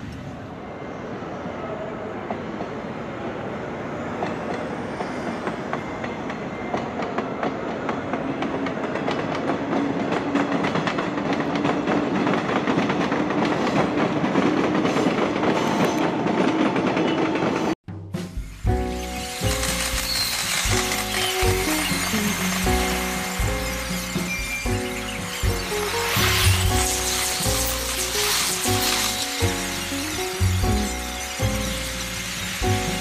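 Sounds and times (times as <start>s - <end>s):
train wheels clattering: 4.2s - 17.8s.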